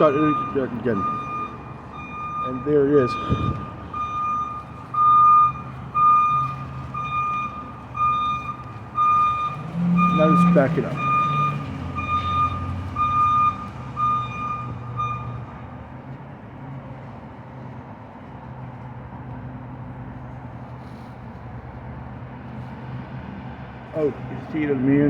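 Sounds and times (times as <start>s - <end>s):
truck reverse alarm beeping: 0.0s - 15.7s.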